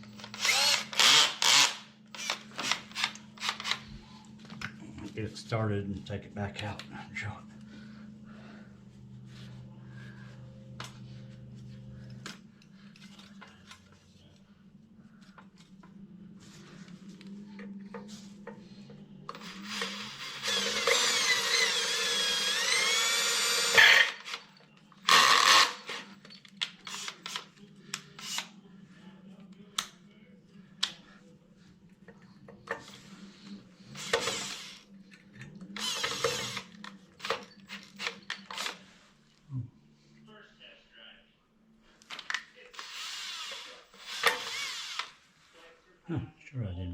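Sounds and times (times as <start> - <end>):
power drill boring into steel: 0.2 - 3.8, 19.3 - 26.1, 34.0 - 34.8, 35.8 - 38.8, 42.8 - 45.1.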